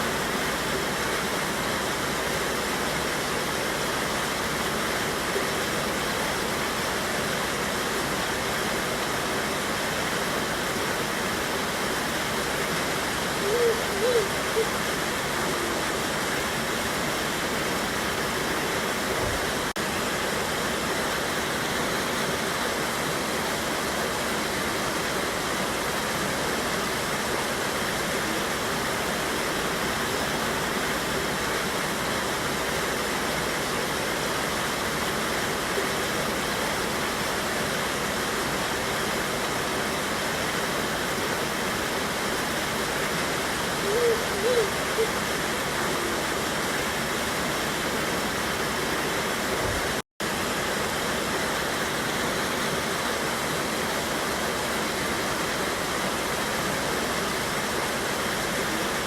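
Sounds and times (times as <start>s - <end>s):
water pouring over waterfall: 0.0s - 59.0s.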